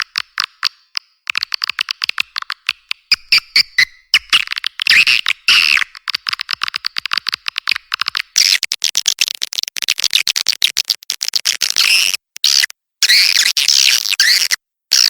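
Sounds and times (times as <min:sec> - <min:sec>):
swiftlet chirps and clicks: 0:00.0 - 0:08.7.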